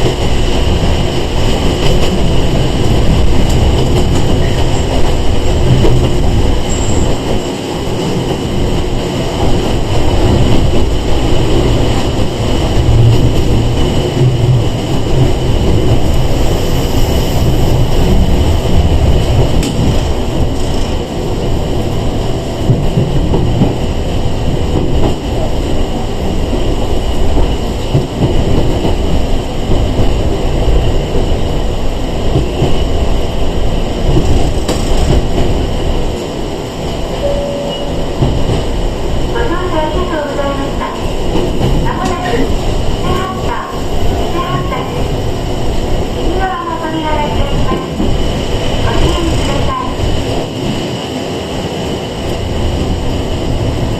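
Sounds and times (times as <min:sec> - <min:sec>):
train wheels rumbling: 0:00.0 - 0:53.9
steady high tone: 0:37.2 - 0:38.2.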